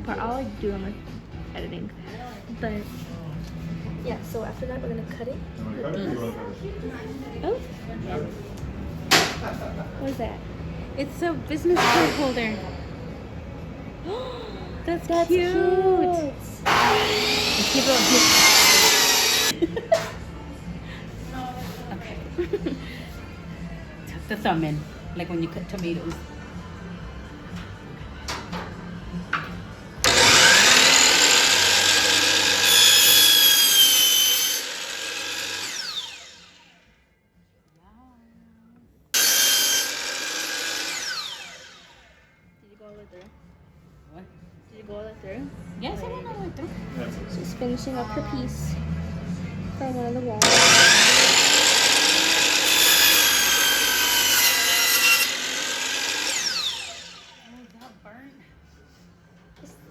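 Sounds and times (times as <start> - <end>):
electric jigsaw cutting wood: 16.7 - 19.6, 30.0 - 36.7, 39.2 - 42.1, 50.4 - 57.6.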